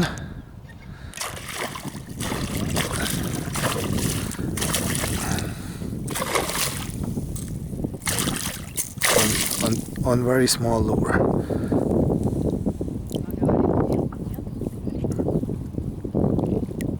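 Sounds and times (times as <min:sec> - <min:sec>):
wind buffeting microphone: 0:00.0 - 0:16.9
water splashing against kayak: 0:01.1 - 0:10.4.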